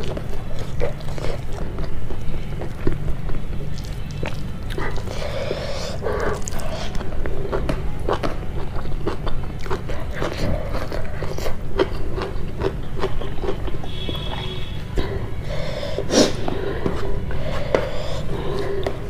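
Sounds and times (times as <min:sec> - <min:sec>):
chewing food: 0:00.0 - 0:19.0.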